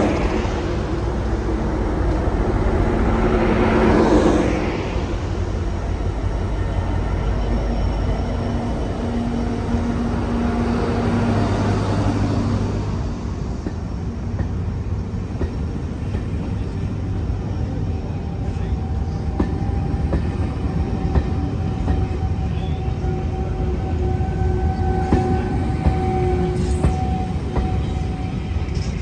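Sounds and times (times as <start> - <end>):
diesel locomotive engine: 0.0 - 29.0
faint steady squeal: 5.7 - 10.6, 17.6 - 29.0.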